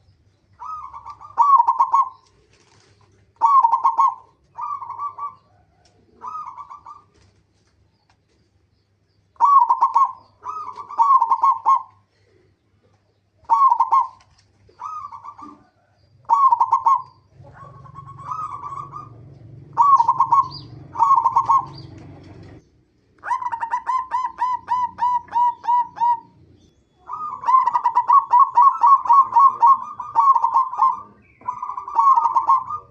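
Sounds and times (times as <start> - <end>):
dove cooing: 0.0 - 7.4, 9.3 - 32.9
low background rumble: 17.0 - 23.4.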